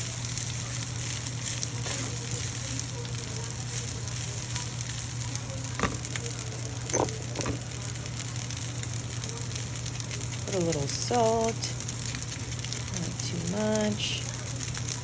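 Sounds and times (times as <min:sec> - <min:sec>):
rice sizzling in a pan: 0:00.0 - 0:15.0
utensil knocking on pan: 0:05.8 - 0:06.1.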